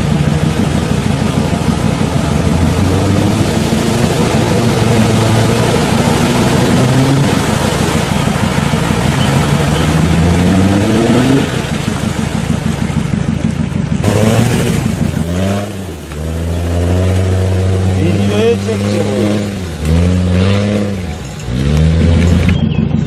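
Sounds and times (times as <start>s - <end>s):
engine revving under load: 0.0s - 23.0s.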